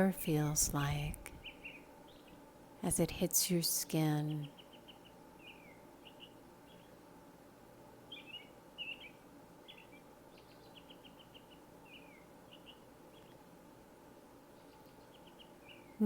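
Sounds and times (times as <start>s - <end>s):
faint bird chirps: 0.0s - 2.5s, 3.8s - 7.1s, 8.0s - 13.5s, 14.5s - 16.0s
faint background hiss: 0.0s - 16.0s.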